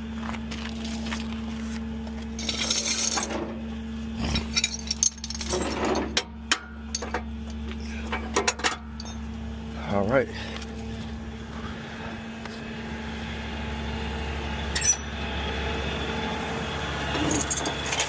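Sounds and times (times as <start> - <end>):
metal clinks and rattles: 2.4 - 3.4, 4.2 - 6.2, 8.3 - 9.2, 17.2 - 18.0
engine idling: 6.3 - 18.0.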